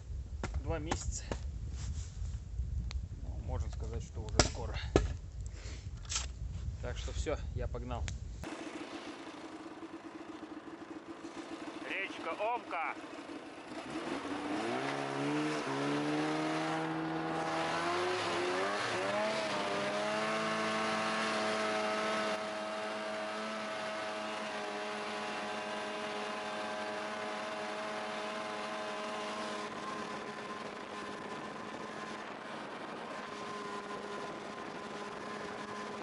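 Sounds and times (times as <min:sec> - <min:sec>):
snowmobile engine accelerating: 0:08.4 - 0:36.0.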